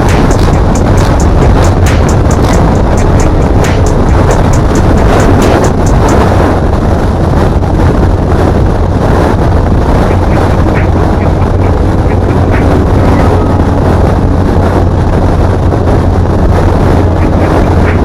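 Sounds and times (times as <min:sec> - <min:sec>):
ticking music beat: 0:00.0 - 0:06.4, 0:10.1 - 0:13.8, 0:17.1 - 0:18.0
car engine and road rumble: 0:00.0 - 0:18.0
wind buffeting microphone: 0:00.0 - 0:18.0.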